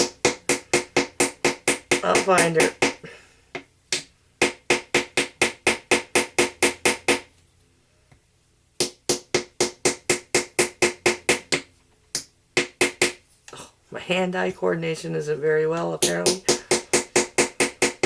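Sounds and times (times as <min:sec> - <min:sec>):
hammer tapping a chisel: 0:00.0 - 0:07.3, 0:16.0 - 0:18.0.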